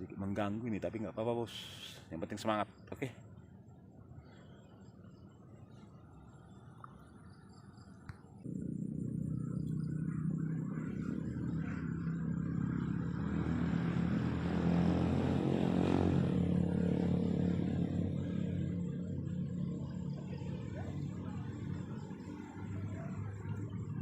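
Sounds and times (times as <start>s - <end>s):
motor engine running: 8.4s - 24.0s.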